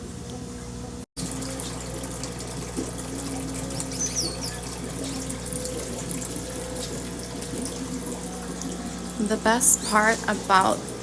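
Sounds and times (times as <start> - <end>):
low steady hum: 0.0 - 11.0
water trickling: 1.2 - 11.0
finches chirping: 3.7 - 5.3.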